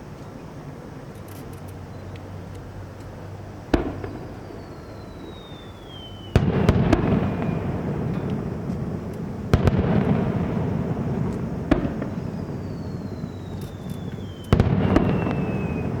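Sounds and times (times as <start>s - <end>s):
fireworks crackling: 0.0s - 16.0s
fireworks bangs: 3.6s - 16.0s
falling firework whistle: 3.7s - 16.0s.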